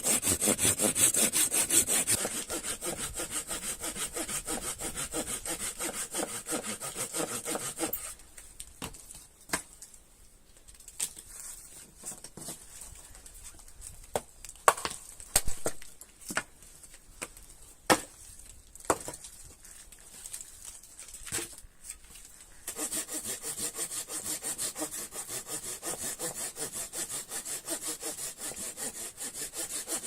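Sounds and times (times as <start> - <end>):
hand saw cutting wood: 0.0 - 8.2, 22.7 - 30.0.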